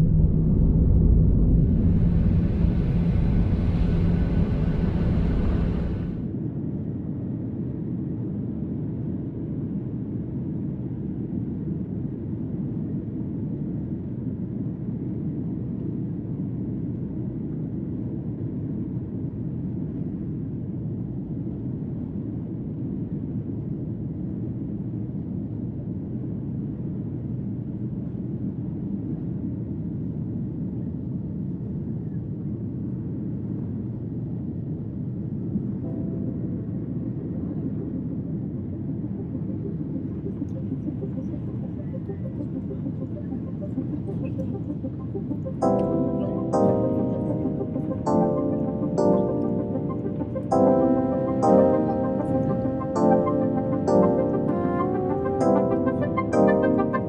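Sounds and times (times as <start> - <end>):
jet engines roaring: 0.0 - 6.3, 36.2 - 57.0.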